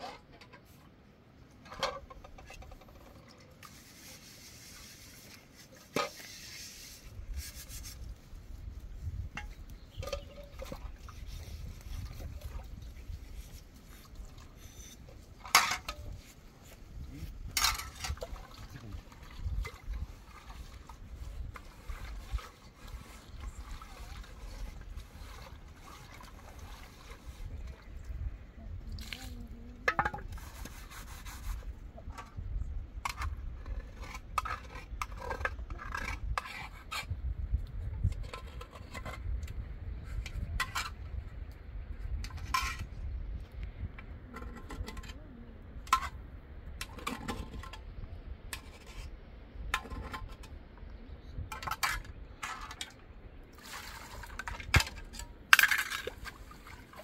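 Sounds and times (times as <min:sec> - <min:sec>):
liquid sloshing: 0:17.5 - 0:28.1.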